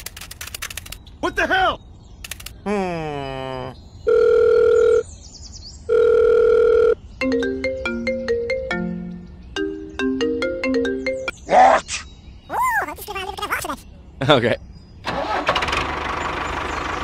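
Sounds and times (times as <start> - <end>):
electronic ringing beeps: 4.1 - 5.0, 5.9 - 7.0
electronic ringtone melody: 5.9 - 11.3.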